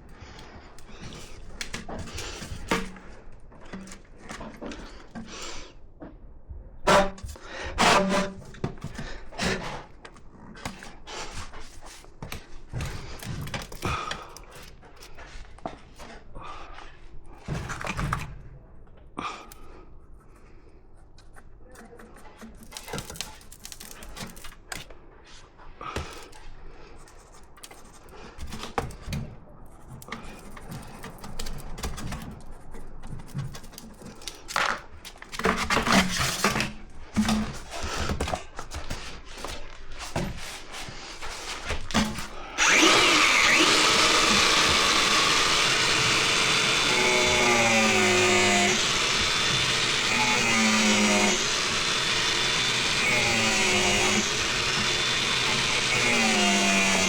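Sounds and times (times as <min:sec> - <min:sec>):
power tool running: 0:42.5 - 0:57.0.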